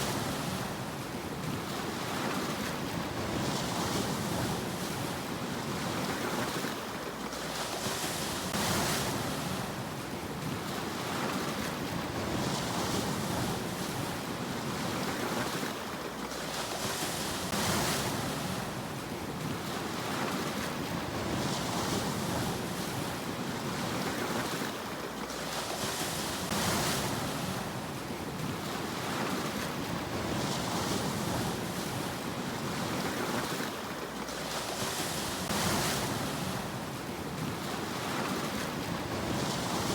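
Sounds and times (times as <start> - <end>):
sea waves breaking on shore: 0.0 - 39.9
steady rumble of water: 0.0 - 39.9.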